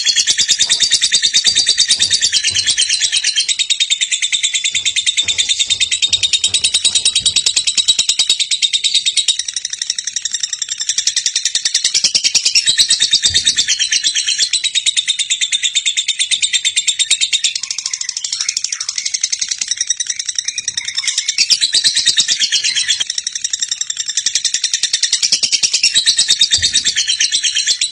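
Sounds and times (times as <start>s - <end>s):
bird fast high chatter: 0.0s - 10.1s.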